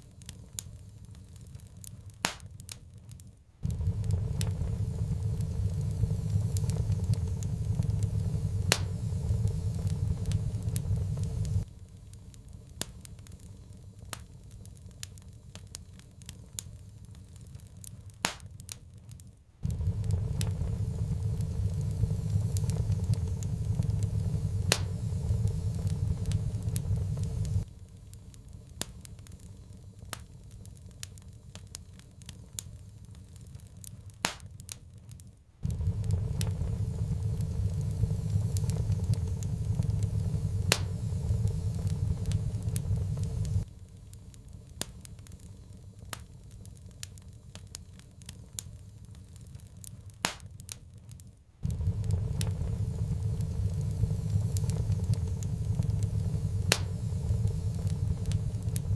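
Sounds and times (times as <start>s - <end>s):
sharp pops and snaps: 0.0s - 58.9s
wood fire crackling: 0.0s - 58.9s
low roar: 3.6s - 11.6s, 19.6s - 27.6s, 51.6s - 58.9s.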